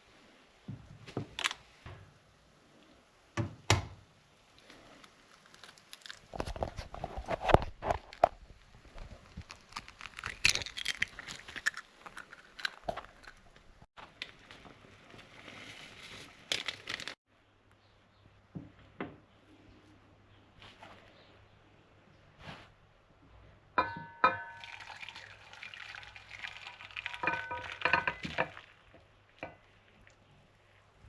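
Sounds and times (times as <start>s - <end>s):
food packaging crinkling: 4.6s - 17.2s, 24.6s - 28.9s.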